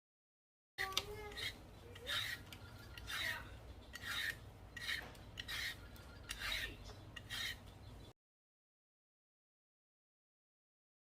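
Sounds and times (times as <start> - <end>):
rhythmic rasping scraping strokes: 1.1 - 7.7.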